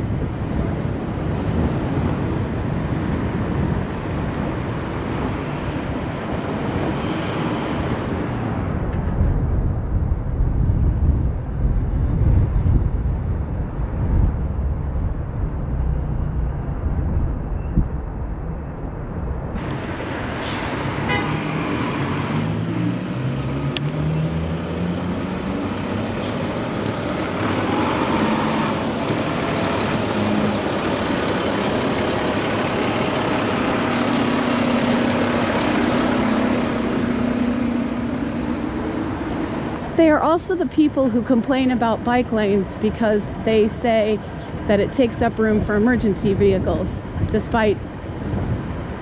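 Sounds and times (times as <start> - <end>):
motor vehicles passing: 0.0 - 49.0
steady engine hum: 0.0 - 49.0
wind rumble on microphone: 0.0 - 49.0
engine rising in pitch: 13.8 - 40.7.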